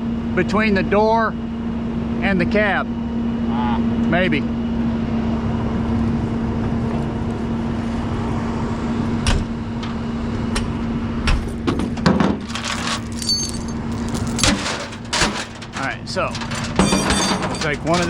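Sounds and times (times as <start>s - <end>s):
metal jangling: 12.4s - 18.0s
sharp metal knocks: 14.4s - 18.0s.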